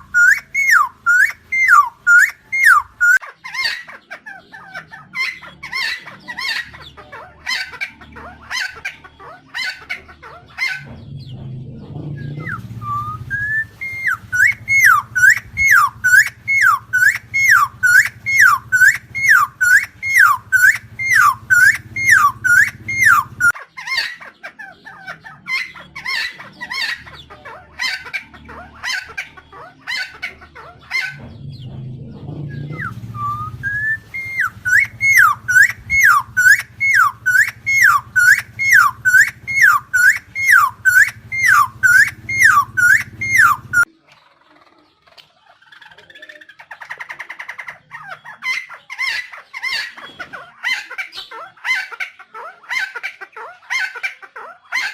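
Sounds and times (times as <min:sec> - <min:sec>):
bird swooping calls: 0:00.0 - 0:03.7, 0:12.1 - 0:23.6, 0:32.4 - 0:43.9
quiet rasping bird calls: 0:00.0 - 0:54.9
low steady hum: 0:10.9 - 0:23.5, 0:31.2 - 0:43.9.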